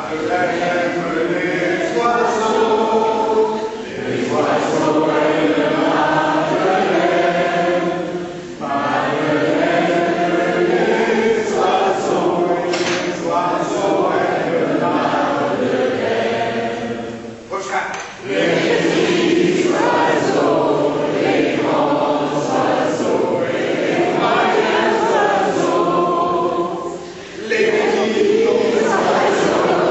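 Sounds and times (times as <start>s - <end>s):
choir singing slow song: 0.0s - 17.5s, 18.2s - 29.9s.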